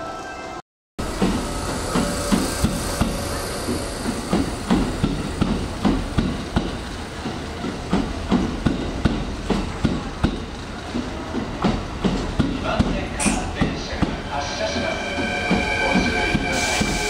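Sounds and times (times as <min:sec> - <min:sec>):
train wheels knocking over rail joints: 0:01.0 - 0:14.2
train running noise: 0:01.0 - 0:17.0.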